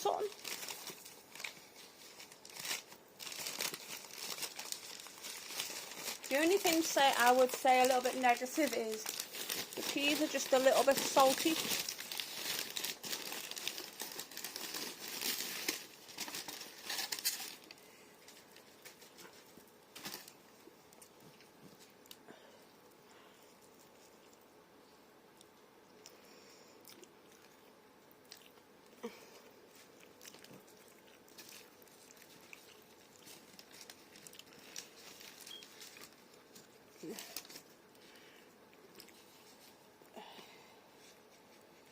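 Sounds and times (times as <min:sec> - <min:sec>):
food packaging crinkling: 0:00.0 - 0:22.2, 0:29.6 - 0:39.8
soft chewing: 0:17.7 - 0:40.1.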